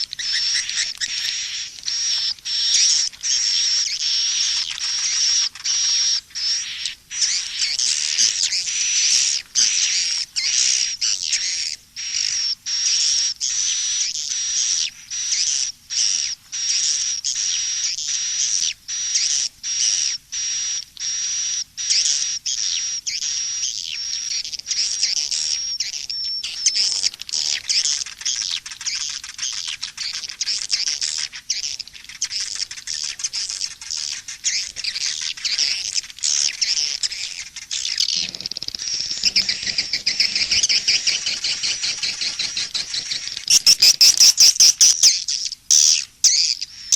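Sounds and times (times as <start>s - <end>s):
swiftlet twittering chirps: 0.0s - 13.0s, 22.6s - 46.9s.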